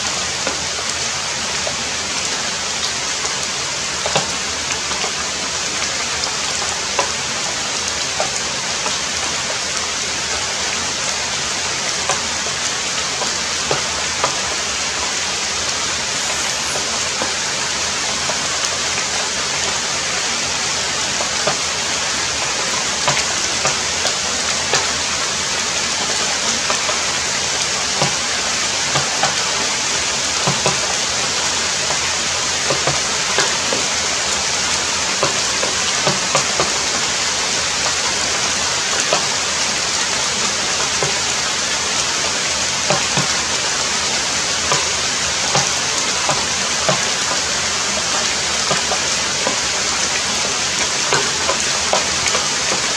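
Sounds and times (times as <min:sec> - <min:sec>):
heavy rain falling: 0:00.0 - 0:52.9.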